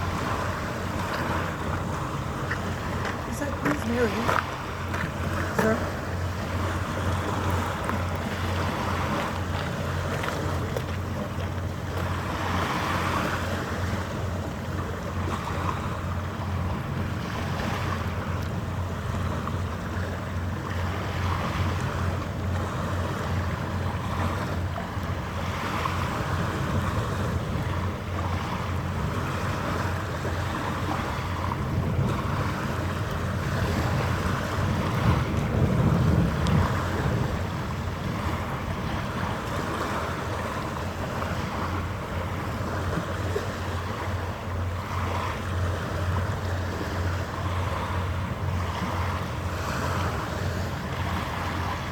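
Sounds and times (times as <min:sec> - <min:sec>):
water washing: 0:00.0 - 0:42.4
ship engines humming: 0:00.0 - 0:51.9
wind on microphone: 0:16.6 - 0:51.9.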